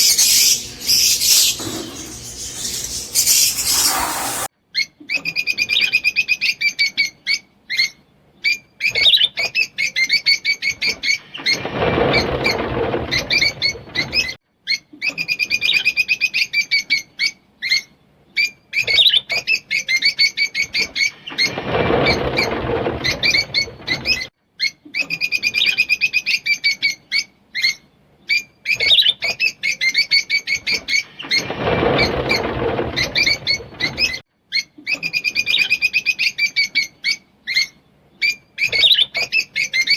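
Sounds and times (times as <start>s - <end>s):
lovebirds chirping and chattering: 0.0s - 4.5s.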